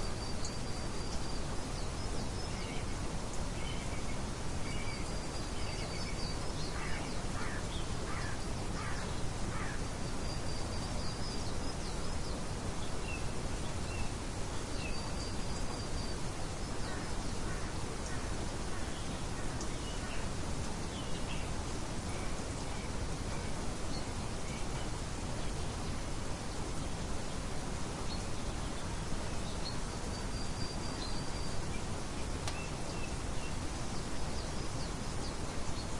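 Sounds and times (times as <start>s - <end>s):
steady rain hiss: 0.0s - 35.9s
bird calls: 4.8s - 11.2s.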